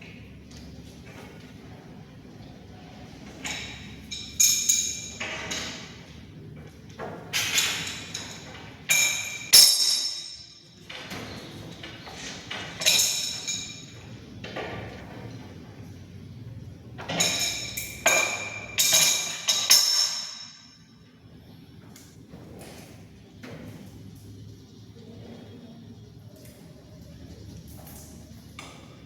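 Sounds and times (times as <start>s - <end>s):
low background hum: 0.0s - 29.0s
sharp metallic knocks and clinks: 3.4s - 6.0s, 7.3s - 11.3s, 12.1s - 14.8s, 17.0s - 21.0s.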